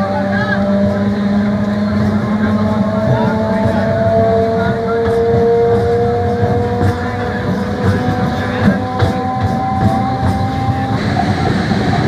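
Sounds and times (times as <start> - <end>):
electric train whine: 0.0 - 12.0
rumble of train wheels: 0.0 - 12.0.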